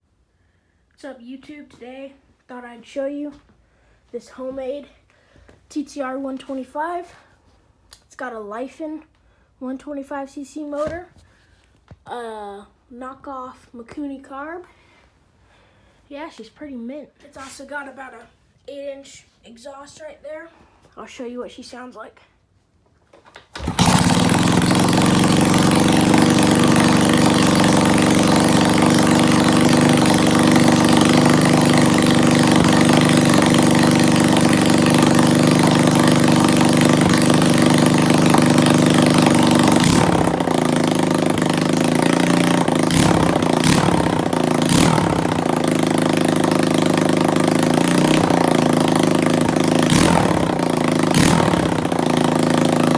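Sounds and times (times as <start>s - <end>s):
engine throttle blips: 23.6s - 52.9s
motorbike engine idling: 23.6s - 52.9s.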